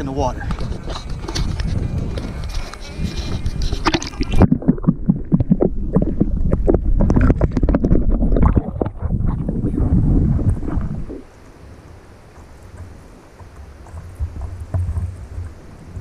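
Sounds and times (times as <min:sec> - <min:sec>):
wind buffeting microphone: 0:00.0 - 0:16.0
water sloshing with knocks: 0:03.6 - 0:11.2.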